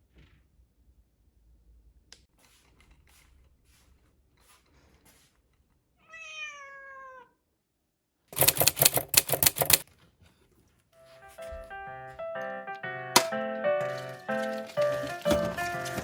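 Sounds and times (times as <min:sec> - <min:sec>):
cat meowing: 0:06.0 - 0:07.4
rapid clattering rattle: 0:08.4 - 0:09.8
light background music: 0:11.0 - 0:16.0.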